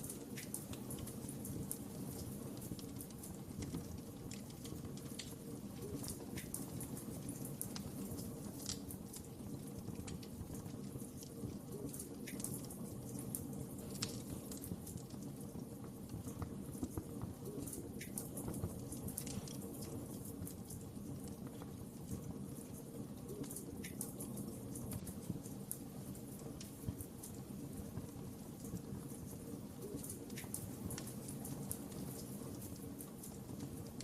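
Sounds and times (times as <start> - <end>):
low rumble of flames: 0.0 - 34.0
wood fire crackling: 0.0 - 34.0.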